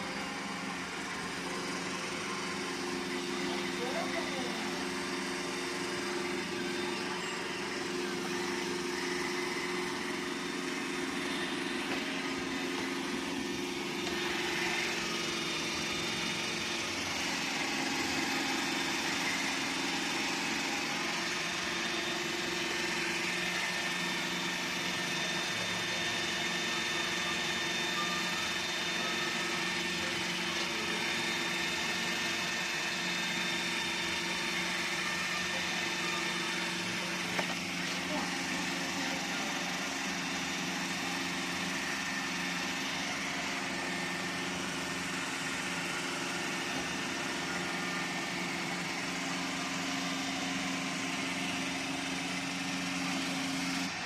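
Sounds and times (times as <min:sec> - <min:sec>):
robot vacuum cleaner humming: 0:00.0 - 0:54.0.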